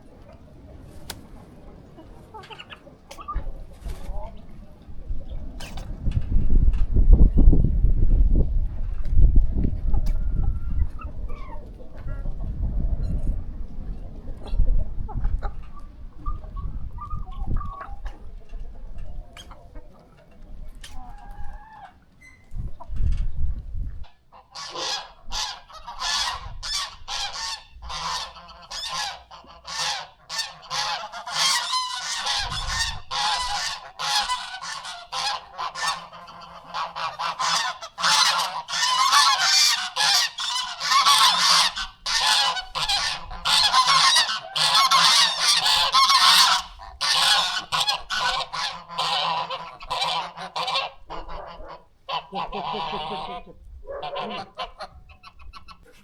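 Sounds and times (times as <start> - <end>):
geese honking: 24.1 - 56.0.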